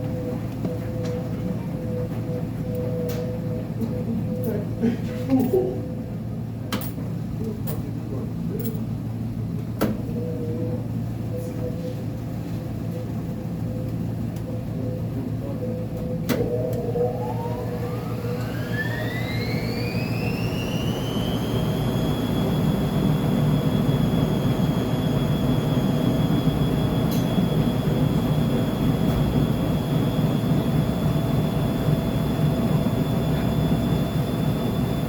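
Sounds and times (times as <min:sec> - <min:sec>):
washing machine low rumble: 0:00.0 - 0:35.0
motor whine rising in pitch: 0:15.9 - 0:35.0.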